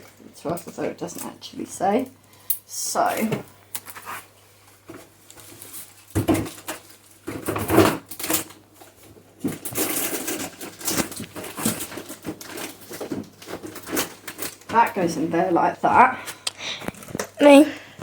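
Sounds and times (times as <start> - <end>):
plastic containers rustling and clattering: 3.2 - 17.4.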